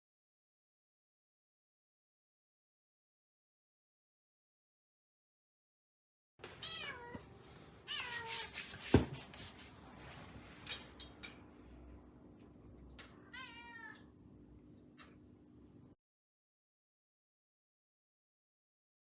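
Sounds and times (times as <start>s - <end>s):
cat meowing: 6.6s - 7.3s, 7.9s - 8.5s, 13.2s - 14.1s.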